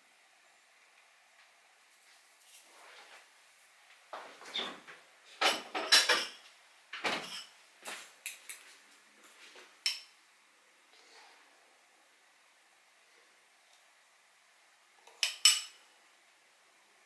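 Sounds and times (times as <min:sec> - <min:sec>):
dishes and utensils clattering: 0:04.4 - 0:06.4, 0:07.0 - 0:07.5, 0:15.1 - 0:15.8.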